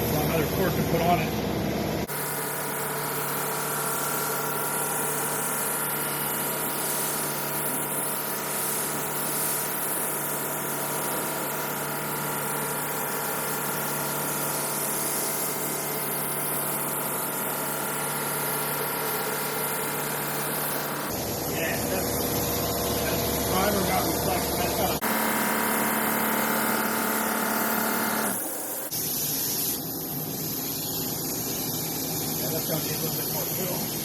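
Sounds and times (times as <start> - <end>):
machine humming and hissing: 0.0 - 34.0.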